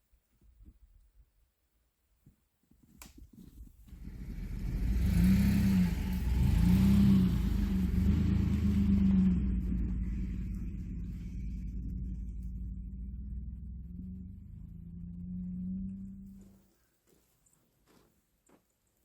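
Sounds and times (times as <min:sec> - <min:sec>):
engine revving with low rumble: 0:03.9 - 0:16.6.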